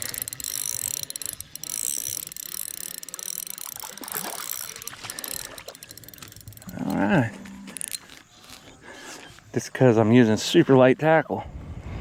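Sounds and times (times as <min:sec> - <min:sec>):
fishing reel clicking: 0:00.0 - 0:07.1, 0:07.7 - 0:08.6.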